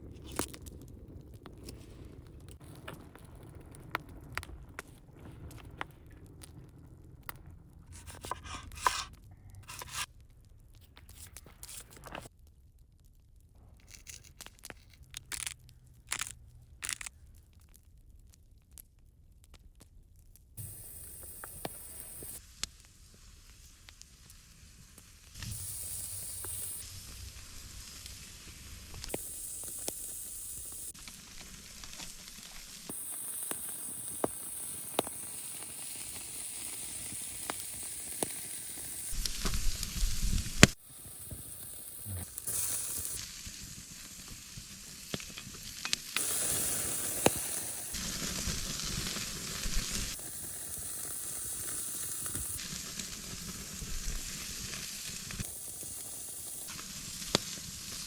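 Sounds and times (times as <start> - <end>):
food sizzling in a hot pan: 20.6 - 58.0
low rumble: 25.4 - 29.1.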